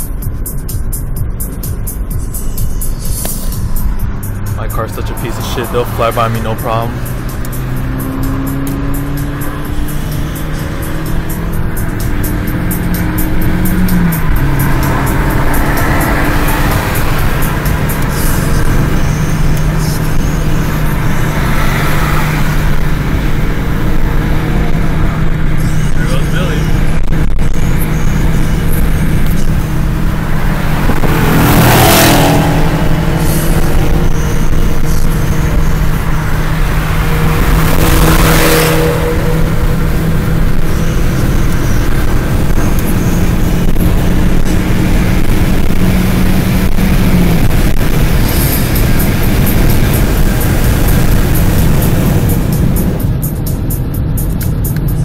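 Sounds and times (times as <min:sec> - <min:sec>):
car road and engine drone: 0:00.0 - 0:55.0
tyre and wind noise: 0:29.9 - 0:33.2.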